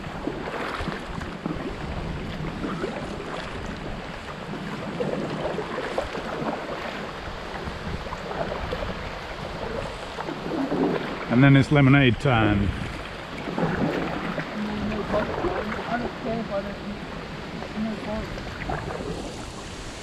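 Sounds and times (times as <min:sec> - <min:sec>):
water splashing around kayak: 0:00.0 - 0:20.0
wind on microphone: 0:00.0 - 0:20.0.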